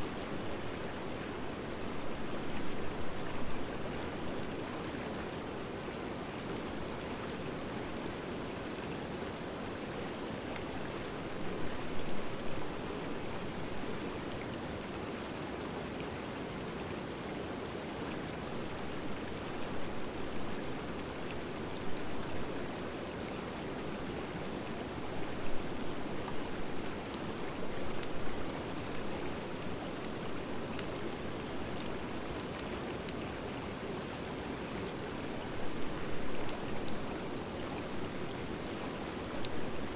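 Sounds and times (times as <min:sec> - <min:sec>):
fire crackling and popping: 0:26.4 - 0:33.4, 0:34.8 - 0:39.9.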